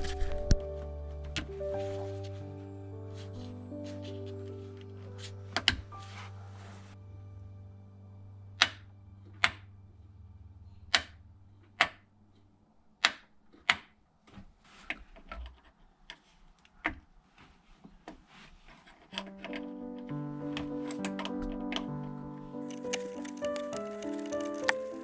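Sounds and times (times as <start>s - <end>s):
low steady hum: 7.0s - 12.5s
sharp clicks: 22.7s - 25.0s.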